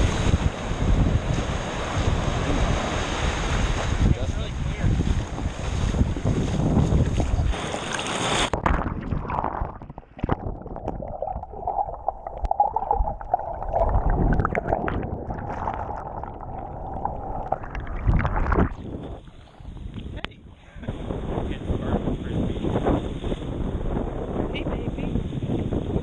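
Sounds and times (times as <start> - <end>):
muffled water sloshing: 0.0 - 20.2
surf: 0.0 - 26.0
wind on microphone: 0.0 - 26.0.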